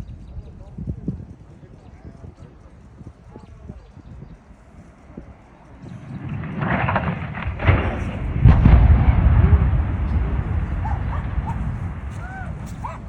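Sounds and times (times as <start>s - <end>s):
distant demolition rumble: 0.0s - 13.0s
sharp cracks: 5.3s - 13.0s.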